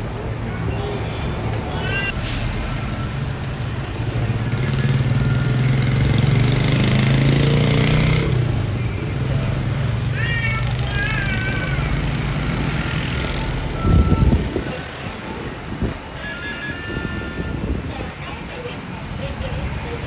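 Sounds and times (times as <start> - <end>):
truck diesel engine passing: 0.0 - 16.3
traffic noise: 0.0 - 20.0.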